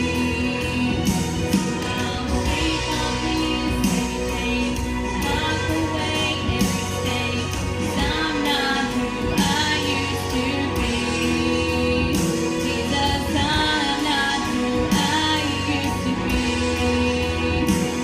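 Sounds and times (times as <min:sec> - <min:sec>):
instrumental accompaniment with beat: 0:00.0 - 0:18.0
woman singing: 0:00.0 - 0:18.0.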